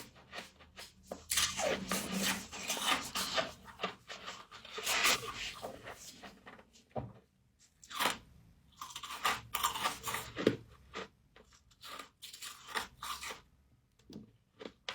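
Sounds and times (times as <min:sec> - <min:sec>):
person chewing crunchy frost: 0:07.8 - 0:13.5, 0:14.5 - 0:14.9.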